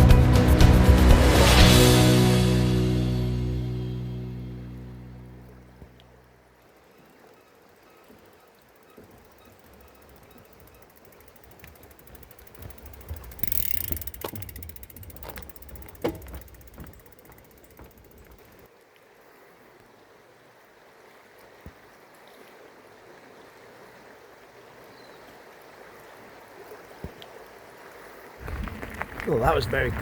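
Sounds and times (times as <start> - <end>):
bicycle freewheel ticking: 8.6 - 18.7
knocks: 14.0 - 18.6.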